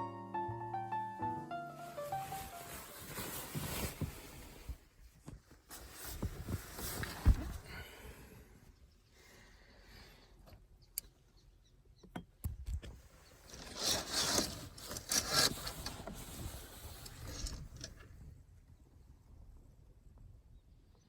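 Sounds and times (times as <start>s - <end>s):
loud rustling and scraping: 2.0s - 4.8s, 13.4s - 17.9s.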